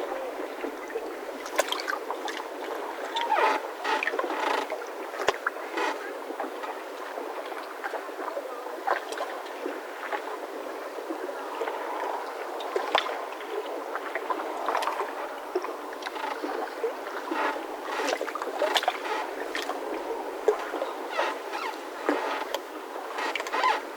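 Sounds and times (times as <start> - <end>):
mooring ropes creaking and squeaking: 2.7 - 6.0, 16.0 - 23.9.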